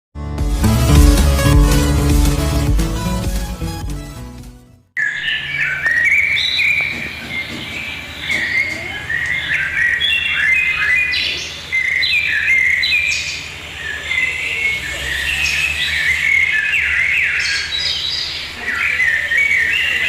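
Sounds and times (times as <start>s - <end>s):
birds chirping and calling: 5.0s - 20.0s.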